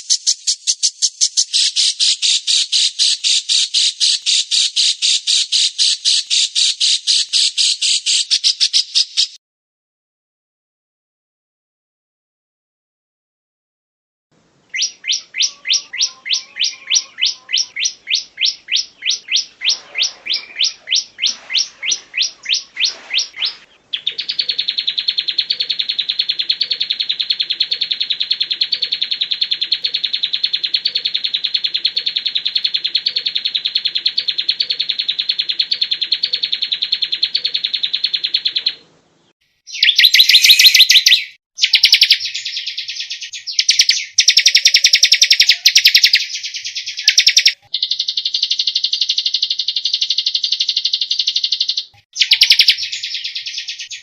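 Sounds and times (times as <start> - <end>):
bird high trill: 0.0 - 9.4, 14.7 - 38.8, 39.7 - 54.0
bird rapid high chatter: 0.0 - 9.4, 14.8 - 38.8, 39.7 - 54.0
songbird sharp repeated notes: 0.0 - 9.4, 14.7 - 38.8, 39.7 - 54.0.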